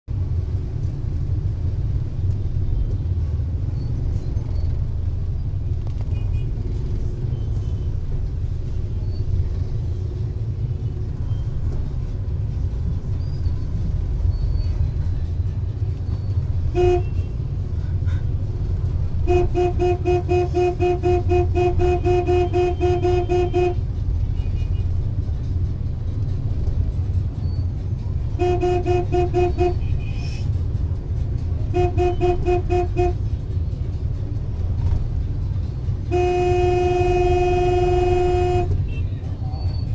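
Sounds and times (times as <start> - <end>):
motorbike traffic: 0.1 - 39.9
horn toots: 16.6 - 18.2, 19.1 - 24.9, 28.2 - 30.6, 31.6 - 33.3, 36.0 - 39.1.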